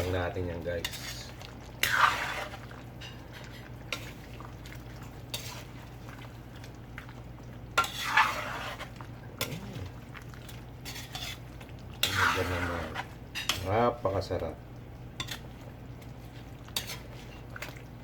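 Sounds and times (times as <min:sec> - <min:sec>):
spoon scraping cooking pot: 0:00.0 - 0:04.3, 0:07.8 - 0:10.0, 0:10.8 - 0:14.0, 0:16.6 - 0:17.5.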